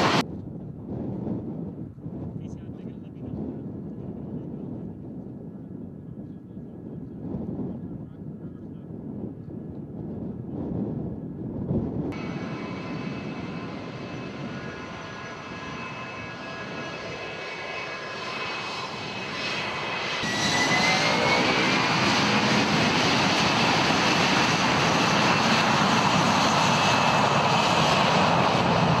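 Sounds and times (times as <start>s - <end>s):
jet engines whining and rushing: 0.0s - 0.2s, 12.1s - 29.0s.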